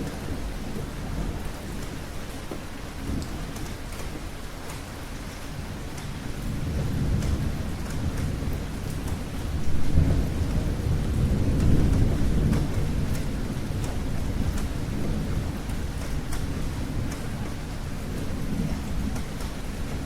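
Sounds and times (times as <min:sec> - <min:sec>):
raindrops ticking: 0:00.0 - 0:20.0
rolling thunder: 0:05.6 - 0:20.0.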